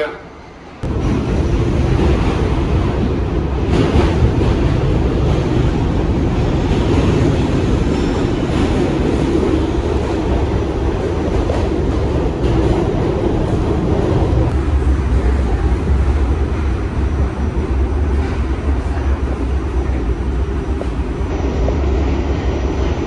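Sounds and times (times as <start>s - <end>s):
wheels rumbling on rail: 0.8s - 23.0s.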